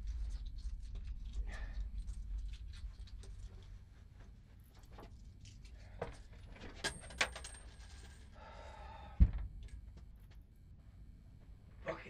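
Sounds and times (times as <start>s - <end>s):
heavy dull thump: 9.2s - 9.5s.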